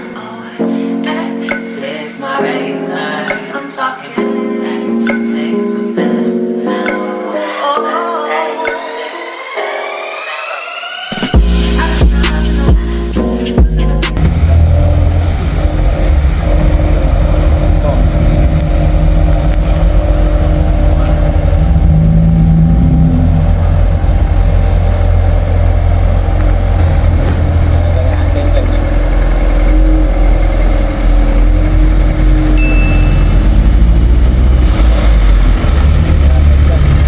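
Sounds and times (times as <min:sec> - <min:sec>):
car engine revving: 0:14.0 - 0:37.0.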